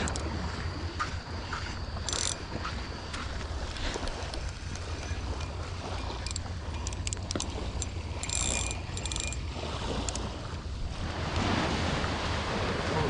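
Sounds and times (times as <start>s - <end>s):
fishing reel clicking: 0.0s - 0.3s, 1.5s - 10.6s
surf: 0.0s - 13.0s
wind: 0.0s - 13.0s.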